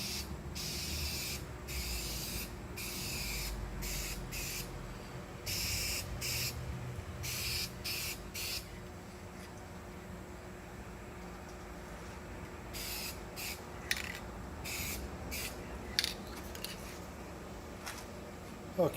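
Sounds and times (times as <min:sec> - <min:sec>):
spray paint can hissing: 0:00.0 - 0:04.7, 0:05.5 - 0:06.6, 0:07.2 - 0:08.6, 0:12.7 - 0:15.6.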